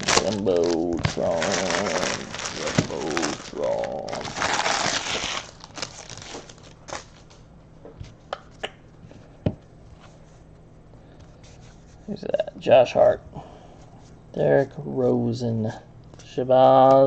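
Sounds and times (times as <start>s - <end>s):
plastic wrapper tearing and crinkling: 0.0s - 7.4s.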